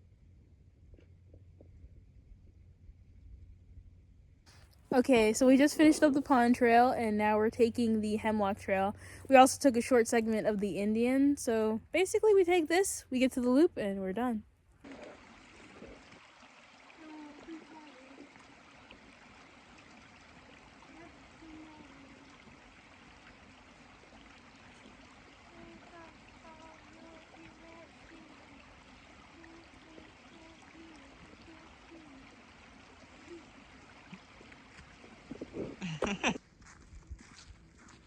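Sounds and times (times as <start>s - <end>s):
creek flowing: 4.5s - 11.6s, 12.3s - 38.0s
faint voices: 17.0s - 18.4s, 25.5s - 32.4s.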